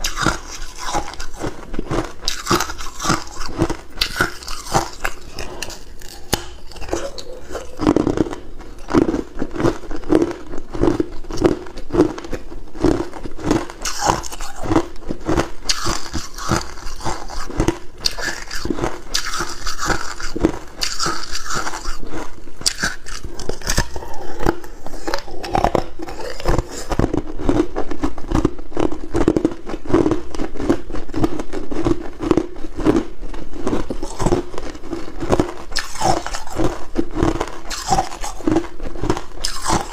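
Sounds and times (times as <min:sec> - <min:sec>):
ice cubes being chewed: 0:00.0 - 0:39.9.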